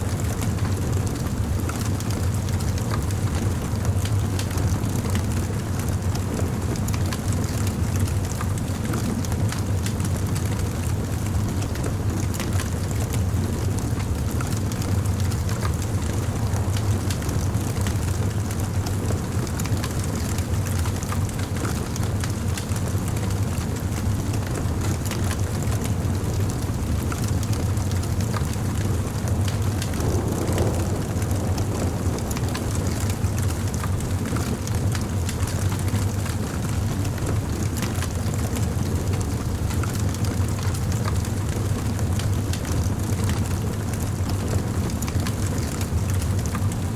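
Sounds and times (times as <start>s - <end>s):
campfire crackling and popping: 6.8s - 25.8s, 26.4s - 46.8s
low rumble: 14.3s - 19.7s, 29.0s - 35.0s.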